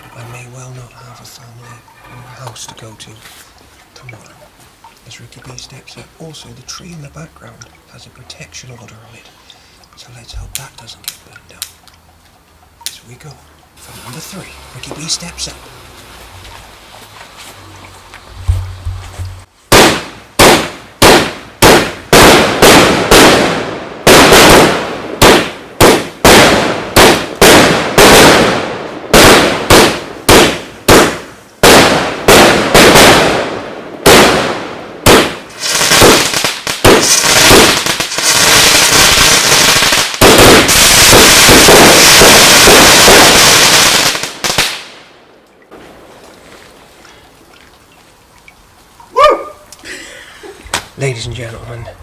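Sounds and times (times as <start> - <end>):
fireworks bangs and crackling: 19.7 - 45.1.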